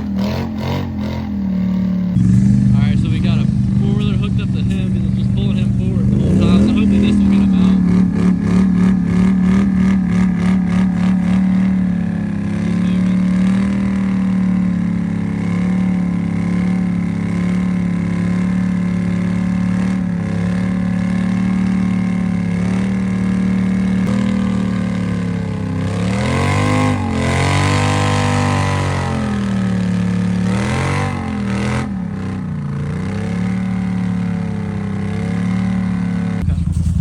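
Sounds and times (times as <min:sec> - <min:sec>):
atv engine running under load: 0:00.0 - 0:37.0.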